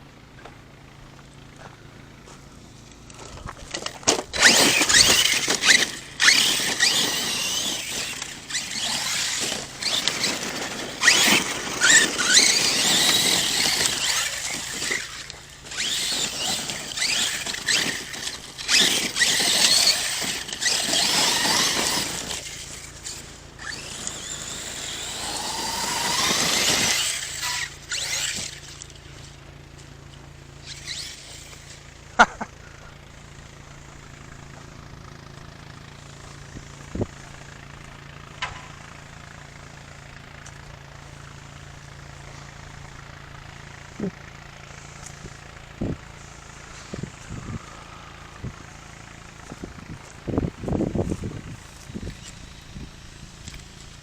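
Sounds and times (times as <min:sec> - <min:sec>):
rc truck motor whining: 0:00.0 - 0:54.0.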